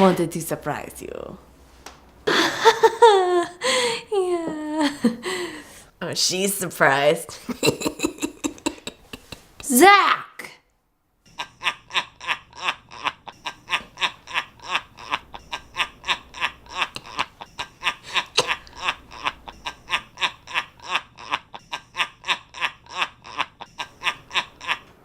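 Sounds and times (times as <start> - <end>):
person laughing: 2.3 - 5.6, 7.4 - 9.6, 11.3 - 25.0.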